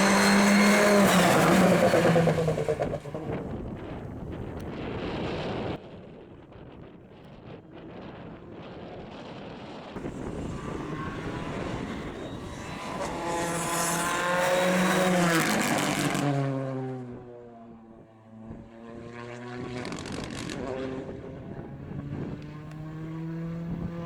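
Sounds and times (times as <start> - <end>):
rally car passing at speed: 0.0 - 4.0, 10.0 - 24.0.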